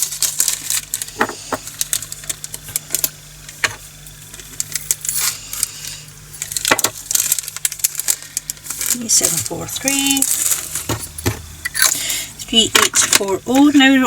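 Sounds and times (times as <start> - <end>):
tiny beads rattling into plastic container: 6.4 - 11.0.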